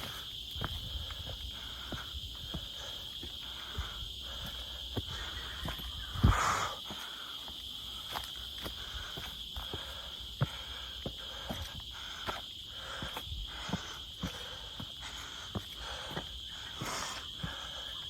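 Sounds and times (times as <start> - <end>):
footsteps crunching on dry ground: 0.0 - 18.0
insects buzzing: 0.0 - 18.0.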